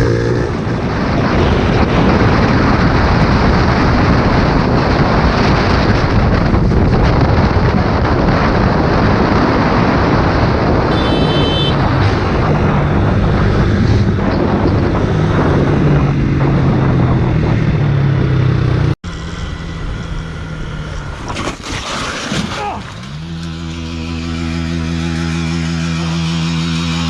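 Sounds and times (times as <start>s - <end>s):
wind rush on microphone: 0.0s - 19.0s
motorcycle engine hum: 0.0s - 21.4s.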